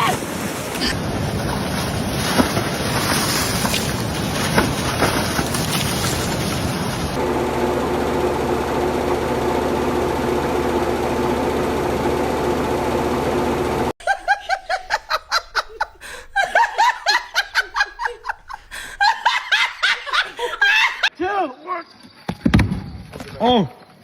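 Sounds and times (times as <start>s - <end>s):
machine humming: 0.2s - 21.1s
person laughing: 14.0s - 21.1s.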